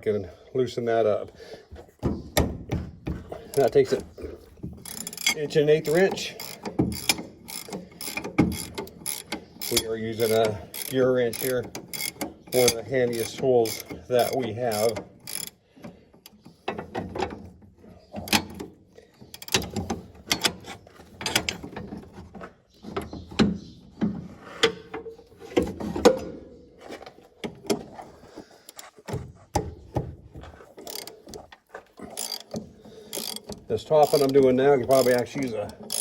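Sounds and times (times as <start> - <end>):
ratcheting wrench clicking: 4.8 - 15.6, 19.3 - 20.6, 30.8 - 36.0.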